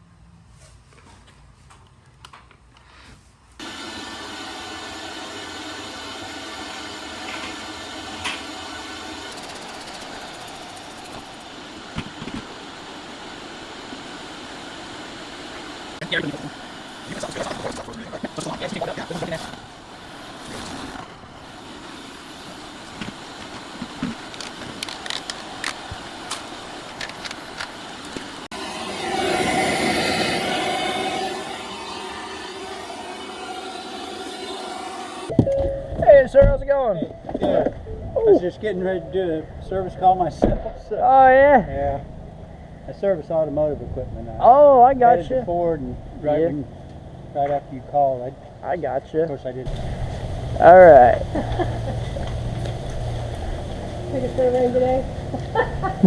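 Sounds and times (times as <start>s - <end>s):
road noise: 3.6s - 35.3s, 45.2s - 56.0s
vehicle engine: 3.6s - 35.3s, 45.4s - 56.0s
low hum: 3.6s - 56.0s
vehicle engine and road noise: 49.6s - 55.6s.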